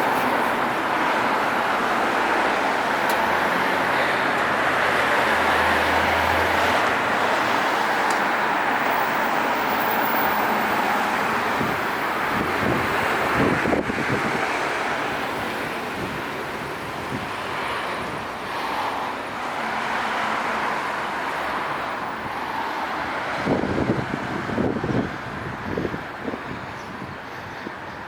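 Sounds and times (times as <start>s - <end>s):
passing cars: 0.0s - 28.0s
wind buffeting microphone: 5.4s - 18.5s, 23.0s - 28.0s.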